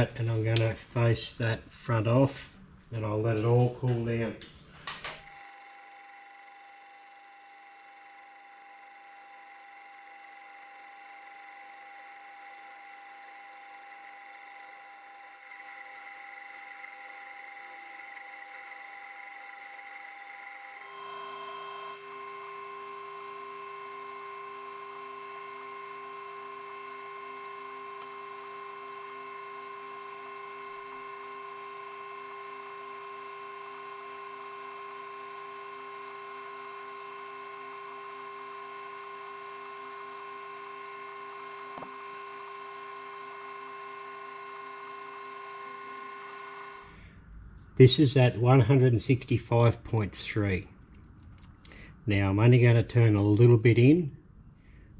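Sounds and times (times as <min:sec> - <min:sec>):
metal lathe gear whine: 0:05.2 - 0:47.0.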